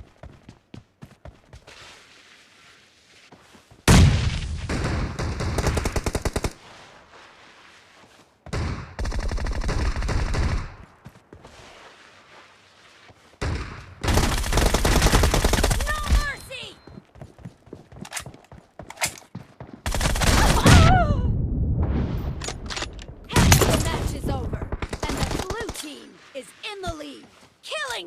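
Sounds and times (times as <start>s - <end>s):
video game automatic gunfire: 14.0s - 16.3s, 19.8s - 20.6s.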